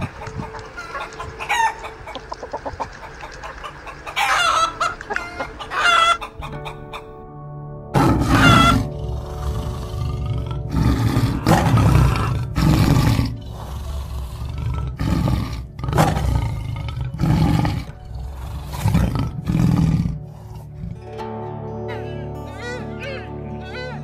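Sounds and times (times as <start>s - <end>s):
soft background music: 0.0s - 24.0s
tiger roaring and growling: 7.9s - 21.2s.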